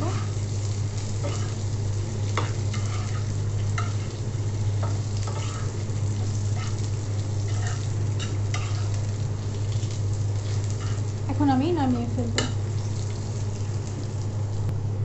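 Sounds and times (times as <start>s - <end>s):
vegetables sizzling in hot oil: 0.0s - 14.7s
steady low hum: 0.0s - 15.0s
metal spatula scraping pan: 1.2s - 1.6s, 2.4s - 4.0s, 5.2s - 5.8s, 7.5s - 9.0s.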